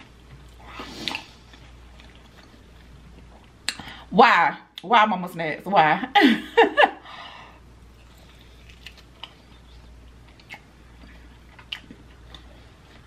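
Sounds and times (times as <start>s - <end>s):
chewing mouth clicks and smacks: 8.1s - 12.5s.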